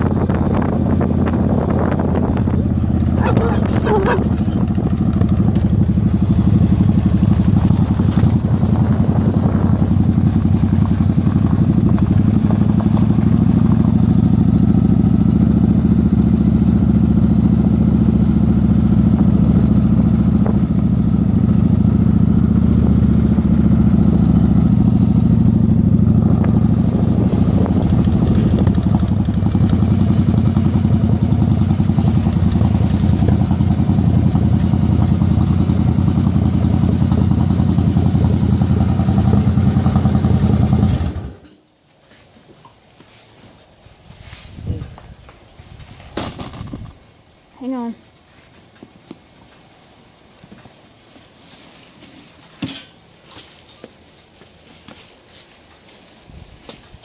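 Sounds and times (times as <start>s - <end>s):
wind noise on microphone: 0.0s - 12.7s, 19.2s - 21.0s, 24.7s - 36.0s, 44.0s - 47.1s, 56.3s - 57.0s
motorcycle engine running: 0.0s - 41.6s.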